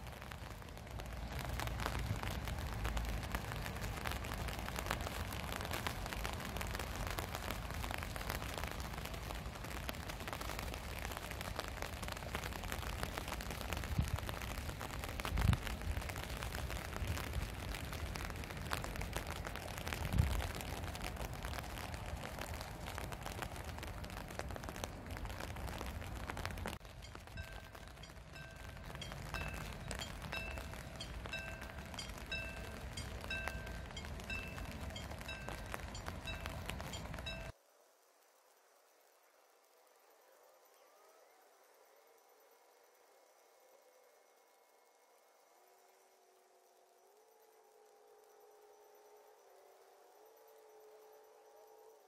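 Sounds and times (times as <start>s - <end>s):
rain hissing: 0.0s - 40.2s
wind buffeting microphone: 0.1s - 37.5s.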